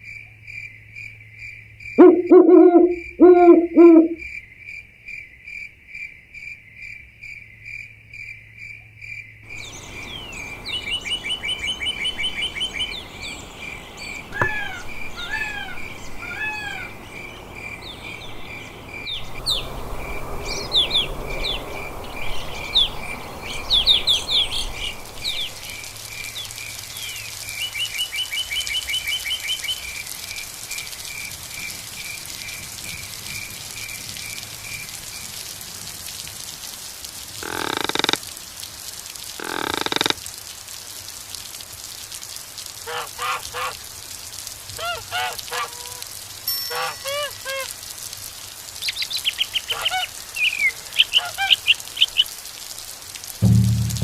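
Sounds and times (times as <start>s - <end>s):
insect chirping: 0.0s - 15.3s
loud hoots: 2.0s - 4.2s
bird calls: 2.0s - 4.3s, 9.5s - 19.7s, 44.8s - 47.8s, 48.8s - 52.4s.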